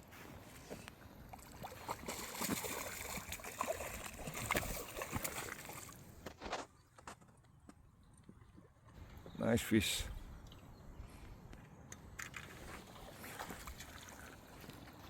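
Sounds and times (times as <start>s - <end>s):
water splashing from thrashing fish: 1.3s - 6.0s.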